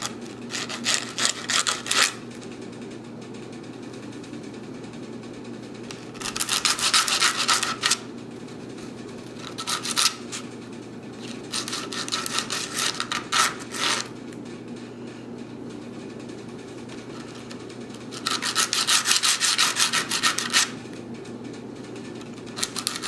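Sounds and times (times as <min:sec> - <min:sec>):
steady low hum: 0:00.0 - 0:23.0
sandpaper scratching metal: 0:00.5 - 0:02.2, 0:06.3 - 0:08.0, 0:09.4 - 0:10.4, 0:11.5 - 0:14.1, 0:18.1 - 0:20.7.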